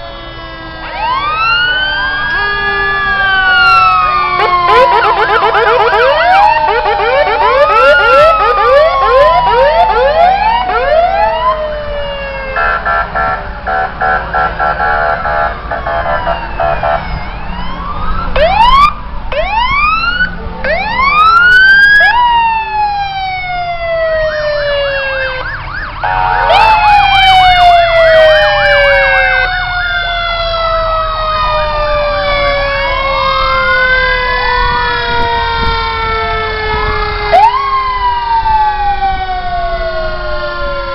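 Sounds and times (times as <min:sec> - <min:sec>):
fire truck sirens wailing: 0:00.0 - 0:40.9
horn pulsing rapidly: 0:03.8 - 0:11.0, 0:12.6 - 0:17.1, 0:26.0 - 0:26.8.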